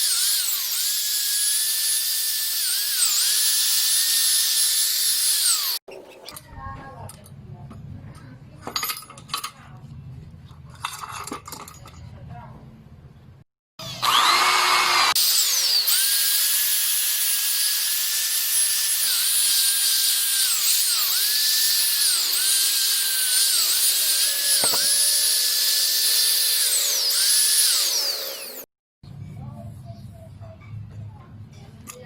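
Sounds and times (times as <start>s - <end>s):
power tool buffing metal: 0.0s - 5.8s, 13.8s - 28.7s.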